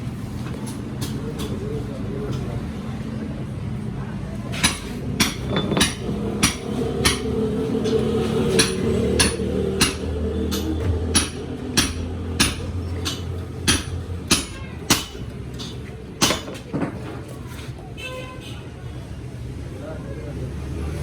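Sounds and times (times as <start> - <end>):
hammer blows on metal: 4.6 - 16.5.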